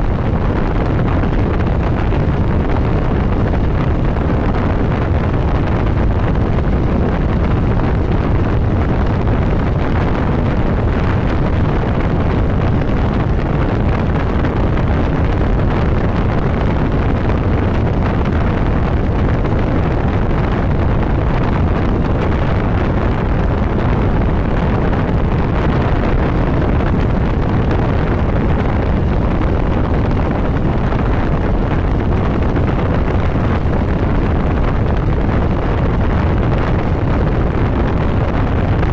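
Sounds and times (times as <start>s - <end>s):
wind rushing over microphone: 0.0s - 38.9s.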